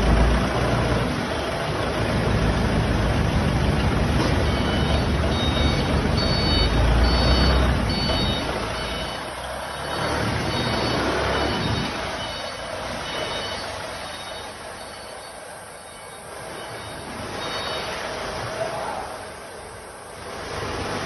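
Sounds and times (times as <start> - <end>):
heavy vehicle engine rumbling: 0.0 - 21.0
short high-pitched beeps: 4.4 - 18.0.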